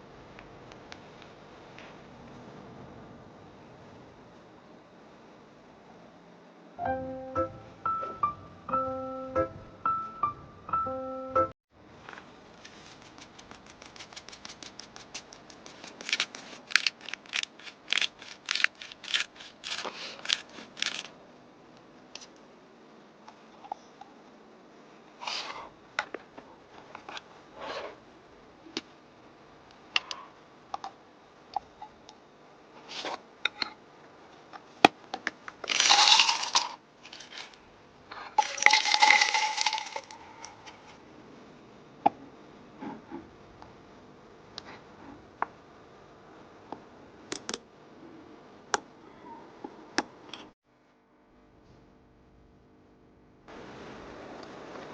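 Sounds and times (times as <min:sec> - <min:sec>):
rustling: 0:12.1 - 0:21.1.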